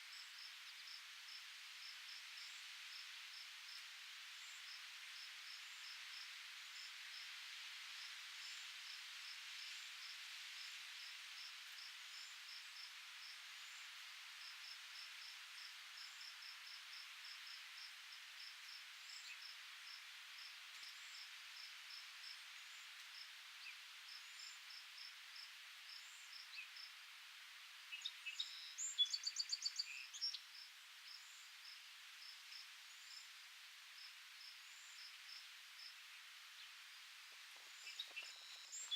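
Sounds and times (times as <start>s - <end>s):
soft wind hiss: 0.0s - 38.9s
cricket chirping: 8.4s - 27.0s, 28.0s - 38.9s.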